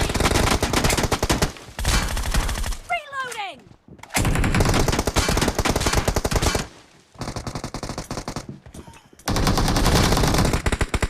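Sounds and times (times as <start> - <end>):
video game automatic gunfire: 0.0 - 2.9, 4.2 - 8.5, 9.3 - 11.0.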